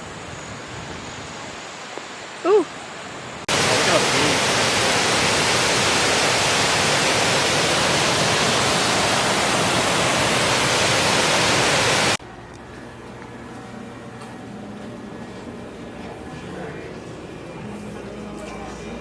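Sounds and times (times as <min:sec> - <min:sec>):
waterfall rushing: 0:01.4 - 0:12.2.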